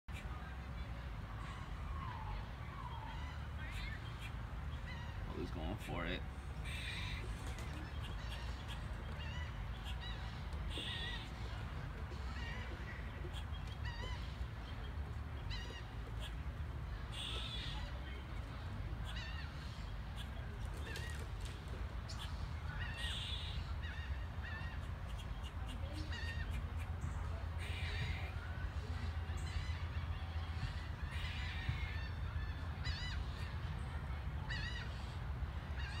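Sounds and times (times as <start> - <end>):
birds chirping: 0.1 - 36.0
bird squawk: 1.4 - 14.6, 15.4 - 18.3, 19.0 - 33.6
steady low rumble: 6.1 - 36.0.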